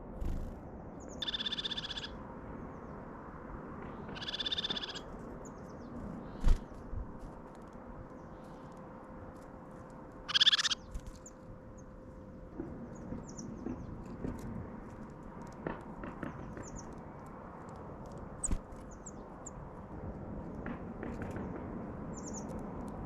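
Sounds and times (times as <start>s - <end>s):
small birds chirping: 0.1s - 3.0s, 4.0s - 6.9s, 10.3s - 11.9s, 12.8s - 14.3s, 16.2s - 17.2s, 18.2s - 19.6s, 22.1s - 22.6s.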